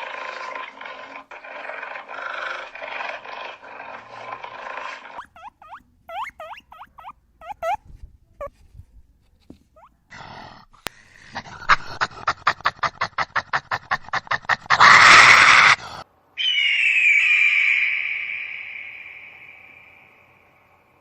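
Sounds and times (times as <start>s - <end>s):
animal calls: 1.2s - 8.5s, 11.7s - 20.2s.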